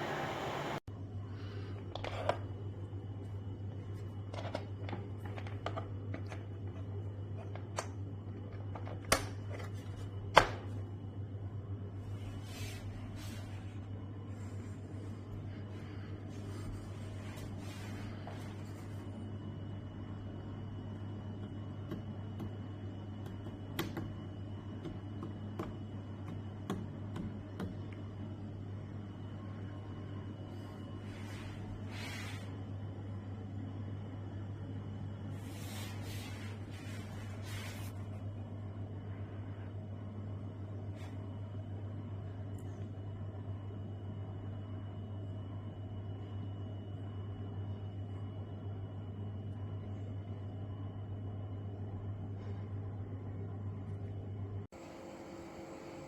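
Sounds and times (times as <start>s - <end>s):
faint high whine: 0.0s - 1.7s, 27.8s - 56.0s
steady low hum: 0.0s - 56.0s.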